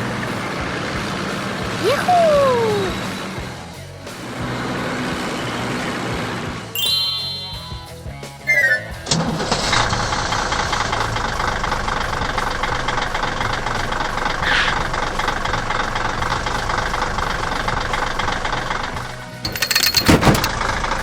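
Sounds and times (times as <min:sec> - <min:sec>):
high squeal: 0:06.8 - 0:09.3
diesel engine knocking idle: 0:09.1 - 0:21.0.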